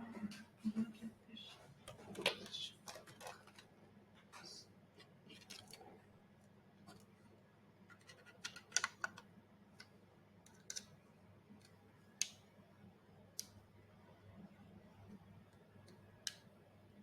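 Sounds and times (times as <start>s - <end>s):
small hard parts clicking: 7.9s - 9.3s.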